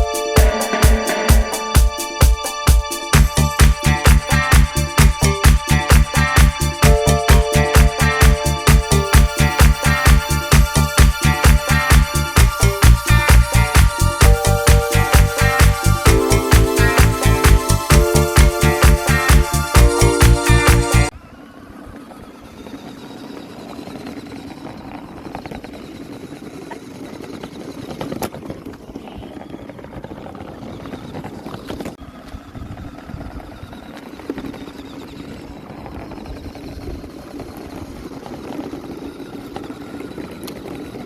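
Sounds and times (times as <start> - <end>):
small electric motor running: 32.4 - 41.0.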